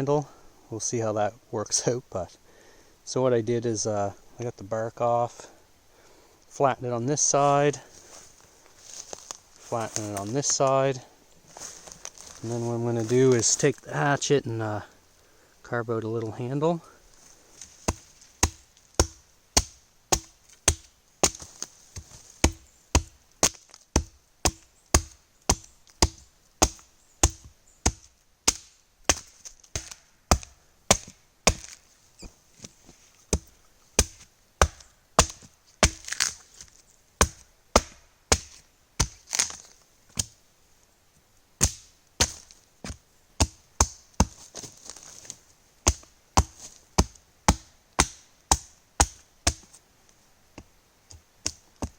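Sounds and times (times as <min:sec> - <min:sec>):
hatchet chopping into log: 0:17.9 - 0:21.5, 0:22.4 - 0:31.8, 0:33.3 - 0:36.4, 0:37.2 - 0:39.6, 0:41.6 - 0:44.4, 0:45.9 - 0:49.7.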